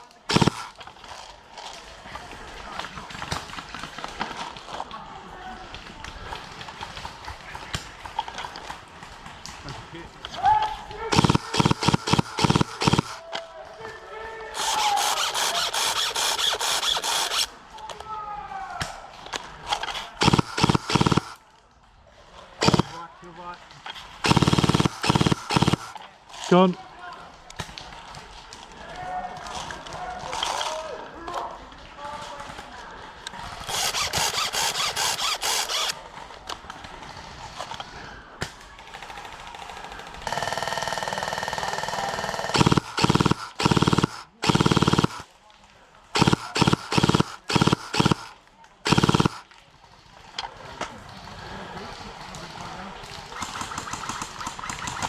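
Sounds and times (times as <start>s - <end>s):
airsoft gun firing full auto: 0.2s - 0.8s, 11.1s - 13.2s, 14.6s - 17.5s, 20.2s - 21.4s, 22.6s - 23.0s, 24.2s - 26.0s, 33.5s - 36.0s, 38.9s - 45.3s, 46.2s - 49.5s, 53.3s - 55.0s.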